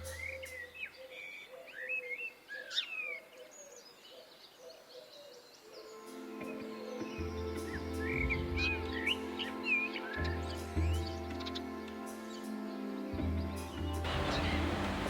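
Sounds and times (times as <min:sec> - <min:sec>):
birds chirping: 0:00.0 - 0:15.0
steady music: 0:05.8 - 0:15.0.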